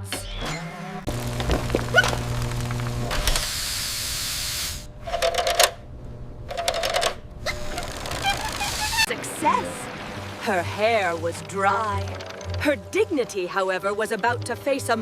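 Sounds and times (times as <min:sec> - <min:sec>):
whirring hum: 0:00.0 - 0:09.2
long hiss: 0:01.2 - 0:04.9
rapid ratcheting clicks: 0:06.5 - 0:08.7.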